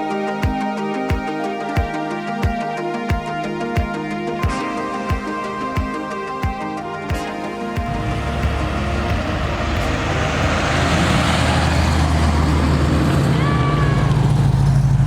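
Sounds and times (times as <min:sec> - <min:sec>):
car engine revving: 0:07.8 - 0:15.0.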